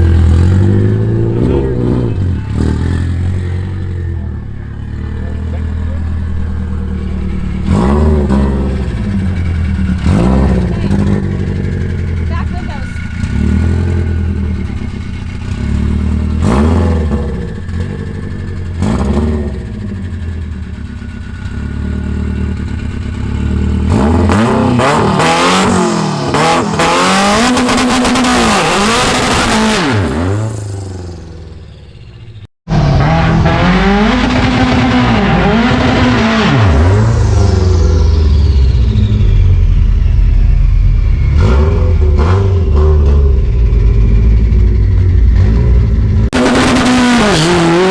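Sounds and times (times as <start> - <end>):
car engine revving through gear shifts: 0.0 - 20.5, 21.4 - 31.5, 32.7 - 39.0, 41.2 - 47.9
loud low rumble: 0.0 - 21.1, 33.0 - 46.4.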